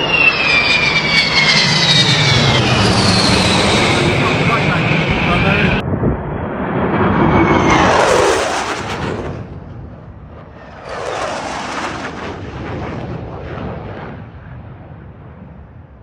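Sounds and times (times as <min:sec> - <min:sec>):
aircraft roaring overhead: 0:00.0 - 0:16.0.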